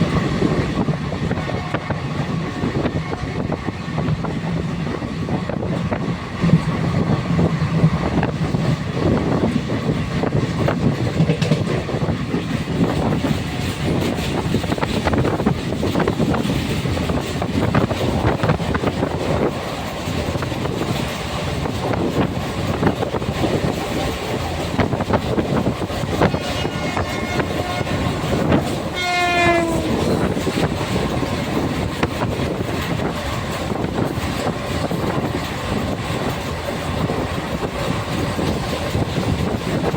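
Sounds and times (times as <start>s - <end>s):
train wheels clattering on track: 0.0s - 39.9s
short train horn: 26.1s - 30.7s.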